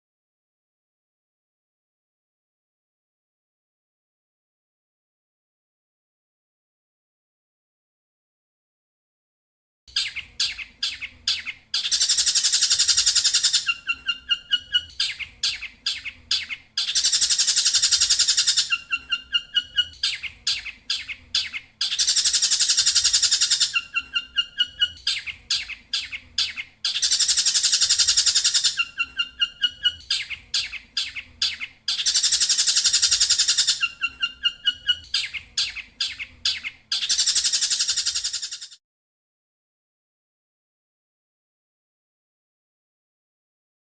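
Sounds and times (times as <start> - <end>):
high buzzing bird trill: 10.0 - 38.8.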